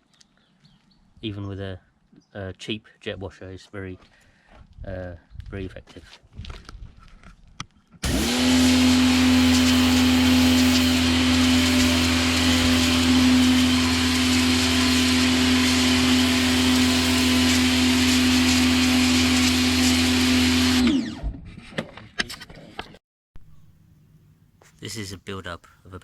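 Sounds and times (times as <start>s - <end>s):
pressure washer motor hum: 8.0s - 21.2s
water jet hissing: 8.6s - 18.8s.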